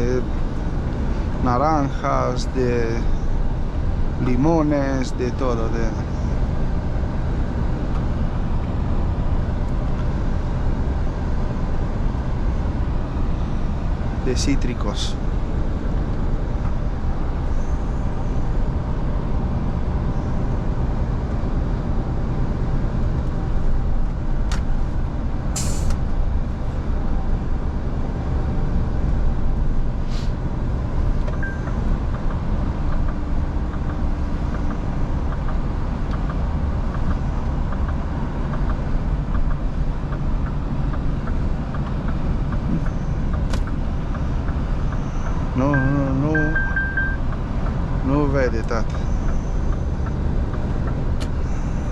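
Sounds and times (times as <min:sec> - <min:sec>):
road noise: 0:00.0 - 0:51.9
truck engine droning: 0:00.0 - 0:51.9
short hiss: 0:25.6 - 0:26.0, 0:30.0 - 0:30.4.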